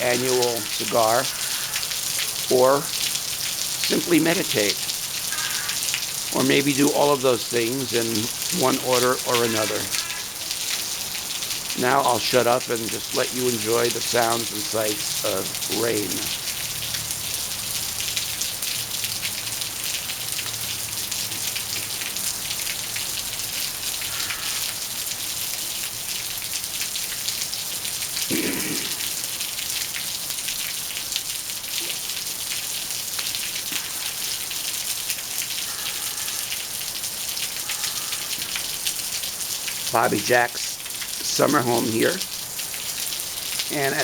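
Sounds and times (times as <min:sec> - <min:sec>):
steady rain falling: 0:00.0 - 0:44.0.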